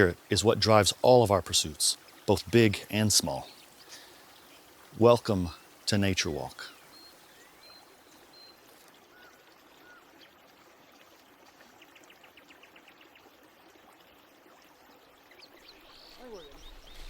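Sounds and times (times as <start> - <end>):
steady low hiss: 0.0 - 9.0.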